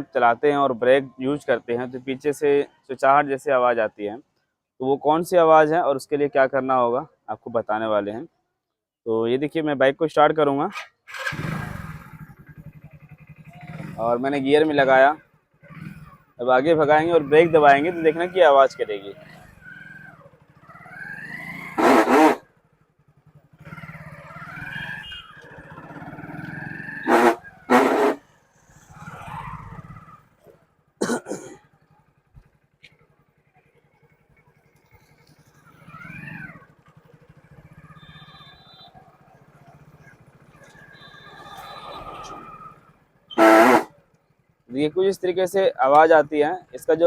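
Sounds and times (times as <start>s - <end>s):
motorcycle engine running: 11.2s - 31.0s, 31.6s - 45.4s
motorcycle drum brake squealing: 19.2s - 22.4s, 23.6s - 30.2s, 35.0s - 43.9s.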